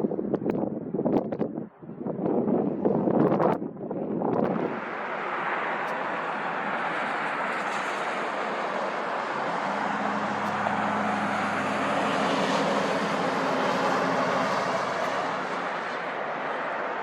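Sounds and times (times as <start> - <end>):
turboprop aircraft passing: 4.5 - 17.0.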